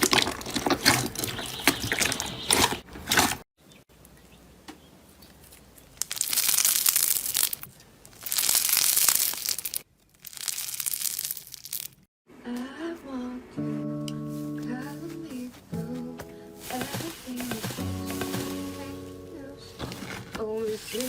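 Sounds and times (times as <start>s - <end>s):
slime crackling and popping: 6.0s - 12.0s.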